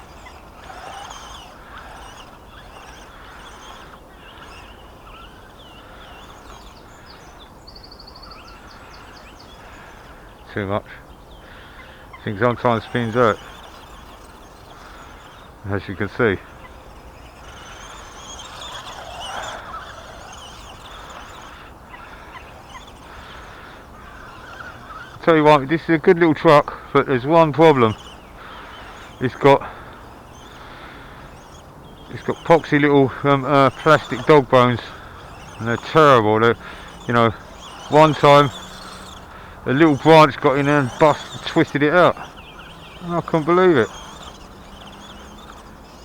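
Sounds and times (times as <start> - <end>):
birds chirping and calling: 0.0 - 46.0
electric motor whining: 0.0 - 46.0
tyres hissing on loose ground: 11.5 - 46.0.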